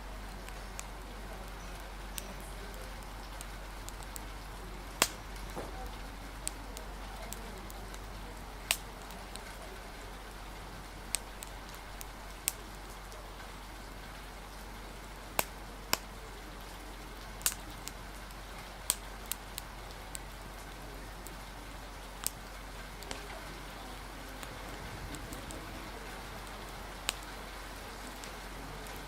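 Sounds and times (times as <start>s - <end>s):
rain hiss: 0.0s - 29.0s
wood fire crackling: 0.0s - 29.0s.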